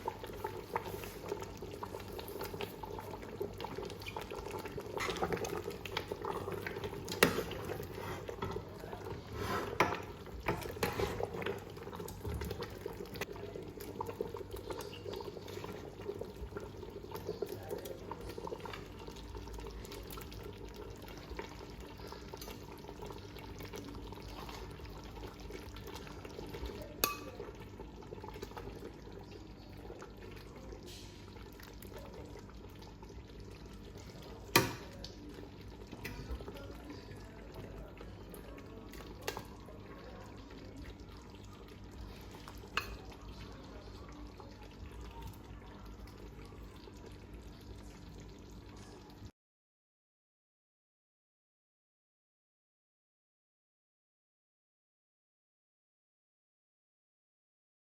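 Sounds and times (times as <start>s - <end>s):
pot bubbling on stove: 0.0s - 49.3s.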